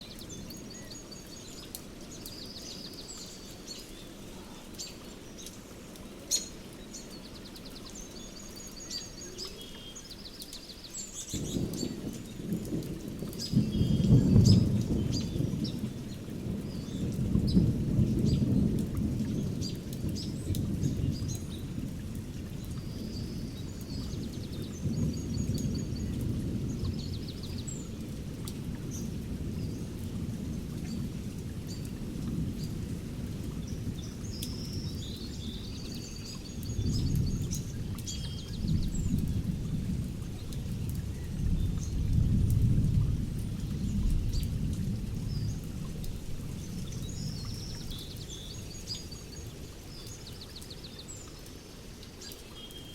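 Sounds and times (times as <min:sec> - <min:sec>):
steady rain: 0:00.0 - 0:52.9
low rolling thunder: 0:11.2 - 0:49.0.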